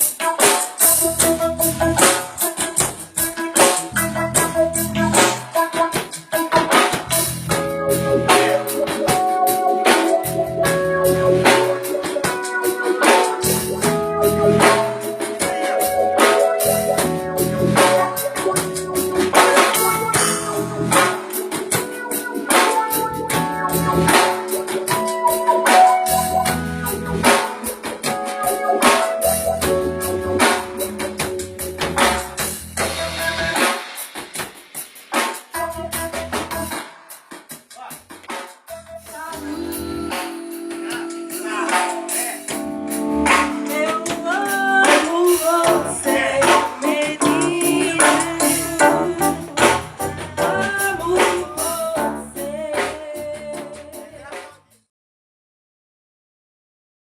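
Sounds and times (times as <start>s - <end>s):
organ-like keyboard chords: 0.0s - 34.0s, 38.7s - 52.9s
drum kit beat: 0.0s - 54.8s
electric bass line: 0.8s - 3.2s, 3.8s - 5.6s, 6.9s - 33.6s, 38.7s - 40.5s, 42.4s - 54.2s.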